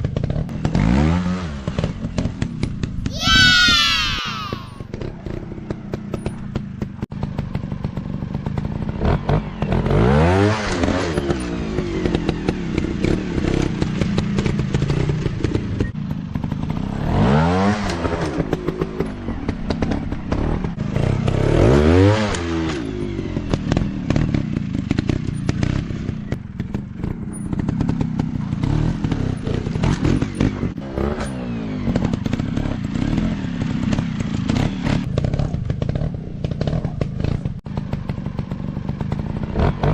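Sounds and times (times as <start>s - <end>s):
dirt bike engines revving: 3.0s - 6.6s.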